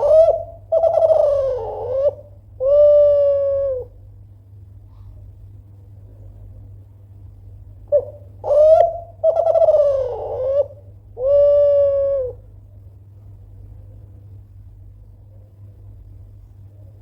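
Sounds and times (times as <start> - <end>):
dove cooing: 0.0 - 4.0, 7.9 - 12.5.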